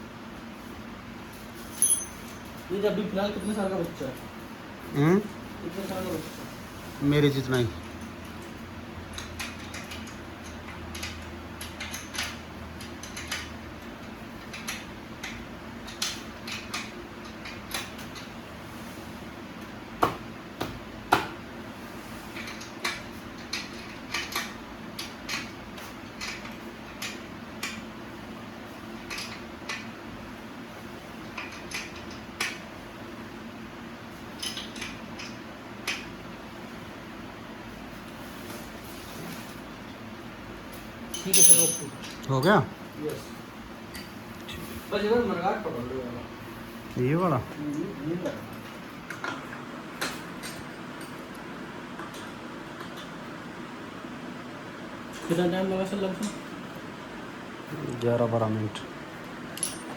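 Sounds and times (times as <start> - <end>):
metallic clinks of hand tools: 1.8 - 2.5, 41.1 - 42.6, 59.6 - 59.9.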